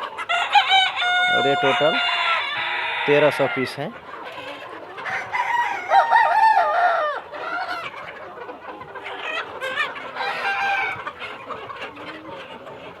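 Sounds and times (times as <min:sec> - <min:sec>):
young roosters crowing: 0:00.0 - 0:03.8, 0:05.0 - 0:07.9, 0:09.7 - 0:11.1
chickens clucking: 0:00.0 - 0:13.0.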